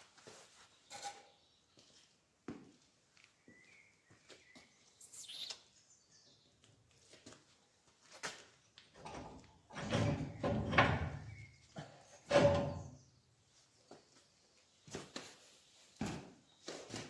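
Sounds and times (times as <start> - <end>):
faint bird chirping: 3.2 - 6.7, 11.2 - 14.8
metal scraping and clattering: 12.3 - 13.0.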